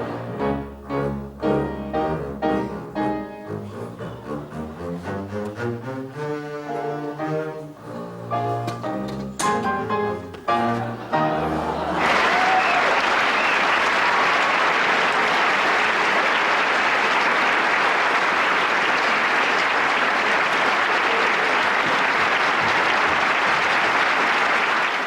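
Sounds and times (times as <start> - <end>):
audience applauding: 10.8 - 25.0.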